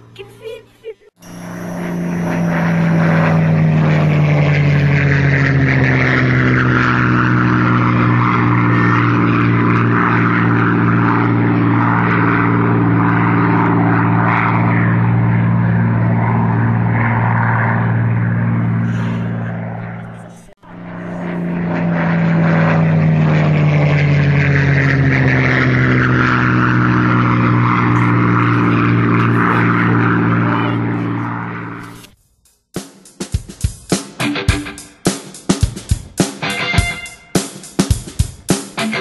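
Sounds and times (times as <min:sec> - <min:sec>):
model plane motor droning: 0:01.1 - 0:32.1.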